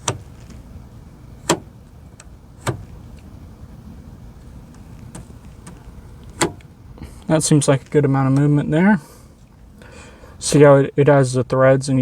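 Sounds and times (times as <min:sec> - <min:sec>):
door latch clicking: 0:00.0 - 0:00.6, 0:01.4 - 0:03.4, 0:04.7 - 0:06.7.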